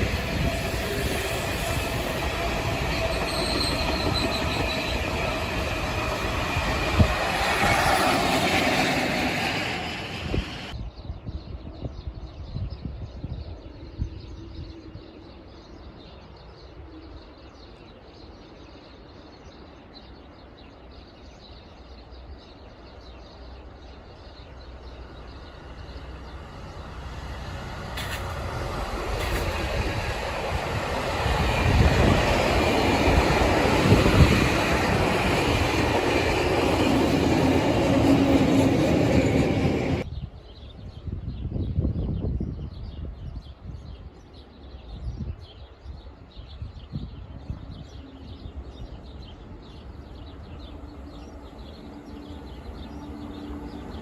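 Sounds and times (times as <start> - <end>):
train wheels rumbling on rail: 0.0 - 10.8, 24.6 - 40.4, 47.0 - 54.0.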